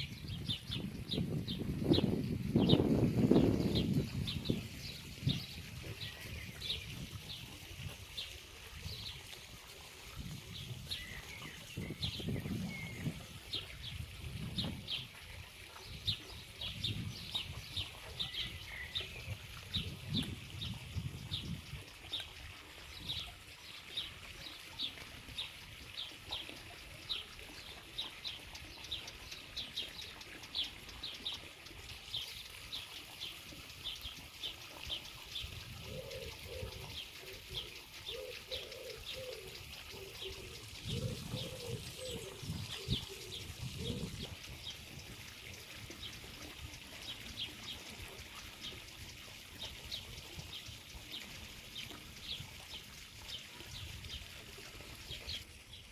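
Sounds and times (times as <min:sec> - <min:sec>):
songbird chirping: 0:26.1 - 0:46.4
dove cooing: 0:35.8 - 0:44.2.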